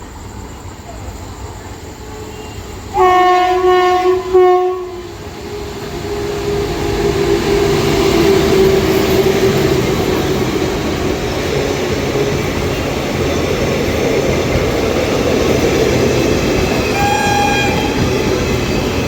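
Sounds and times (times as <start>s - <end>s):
approaching train rumble: 0.0s - 19.0s
train horn blasts: 2.2s - 5.2s, 16.8s - 18.3s.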